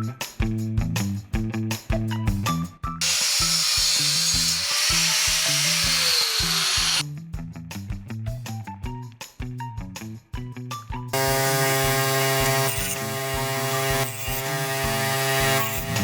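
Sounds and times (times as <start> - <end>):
power tool hissing on metal: 3.0 - 7.0, 11.2 - 16.0.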